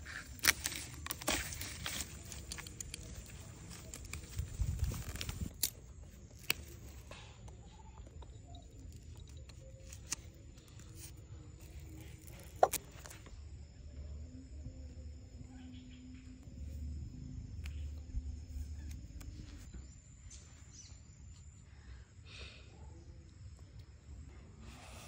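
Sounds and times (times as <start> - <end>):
bandage being peeled: 0.1 - 7.1
wrapper being torn open: 0.2 - 5.8.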